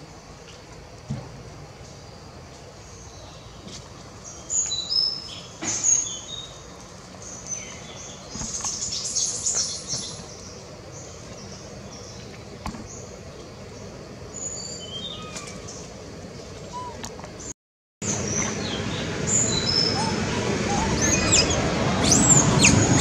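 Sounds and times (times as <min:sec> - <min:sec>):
high-pitched bird chirps: 0:19.4 - 0:23.0.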